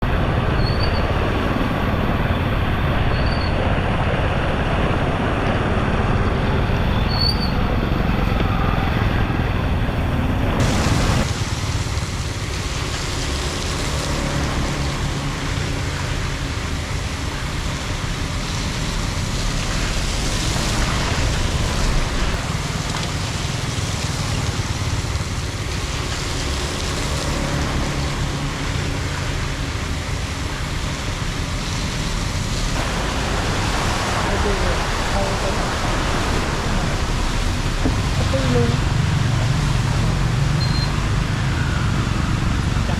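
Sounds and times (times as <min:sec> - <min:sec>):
water rushing into storm drain: 0:00.0 - 0:42.9.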